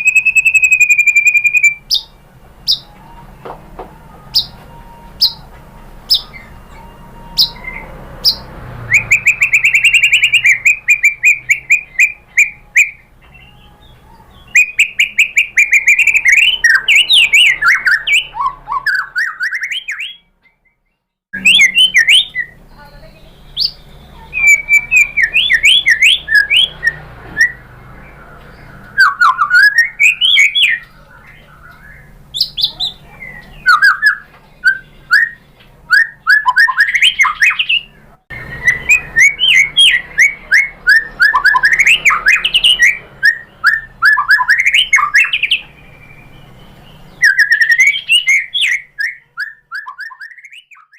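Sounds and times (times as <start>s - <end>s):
bird singing whistled notes: 0.0s - 3.0s, 4.3s - 5.5s, 6.1s - 50.9s.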